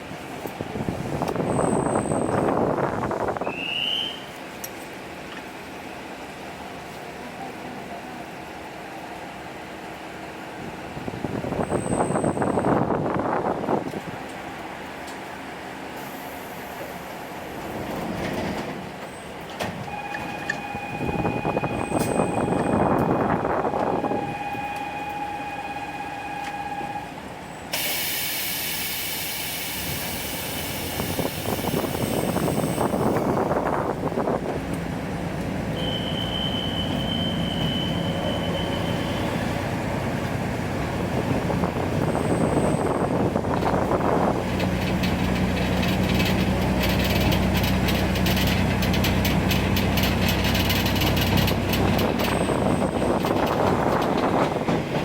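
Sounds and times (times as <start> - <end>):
train rattling: 0.0 - 55.0
loud hiss of air: 15.9 - 17.5, 27.7 - 33.6
diesel engine low drone: 26.0 - 55.0.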